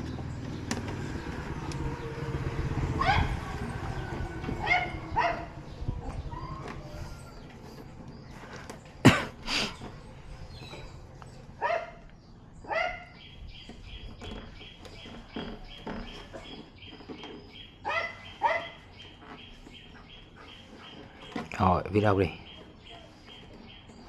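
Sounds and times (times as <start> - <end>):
dog barking: 3.0 - 3.5, 4.6 - 5.6, 11.6 - 12.0, 12.7 - 13.1, 17.8 - 18.8.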